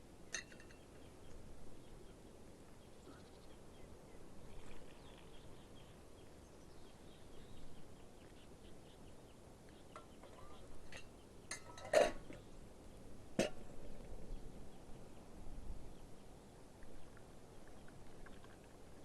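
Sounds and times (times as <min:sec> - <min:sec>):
metal cookware clinking: 0:10.0 - 0:12.3.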